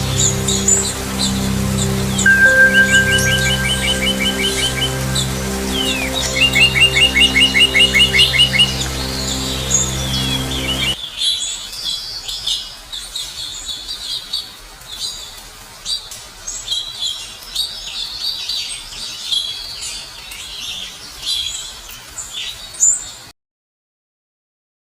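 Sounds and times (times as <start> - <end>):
birds chirping and trilling: 0.0 - 14.2.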